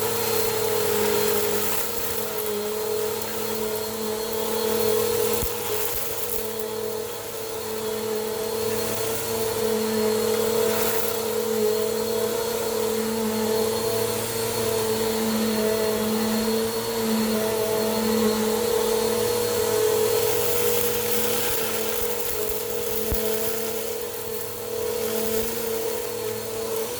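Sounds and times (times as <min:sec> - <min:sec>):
vacuum cleaner running: 0:00.0 - 0:26.9.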